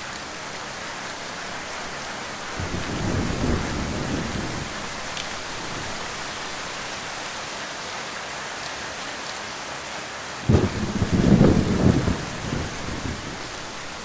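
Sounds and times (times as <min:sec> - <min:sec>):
heavy rain: 0:00.0 - 0:14.0
thunder rumble: 0:02.4 - 0:06.7, 0:10.5 - 0:14.0.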